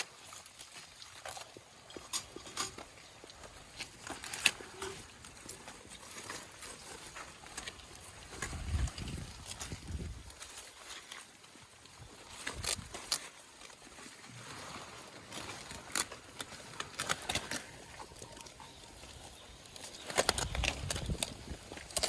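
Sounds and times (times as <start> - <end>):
goats feeding on leaves: 0.0 - 22.0
leaves rustling and snapping: 3.8 - 11.2, 12.2 - 14.2, 15.2 - 22.0.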